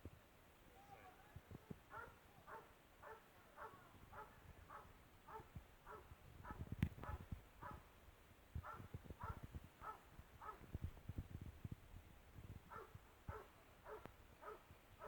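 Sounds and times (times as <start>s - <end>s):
faint dog barking: 1.9s - 7.9s, 8.6s - 10.7s, 12.7s - 14.7s.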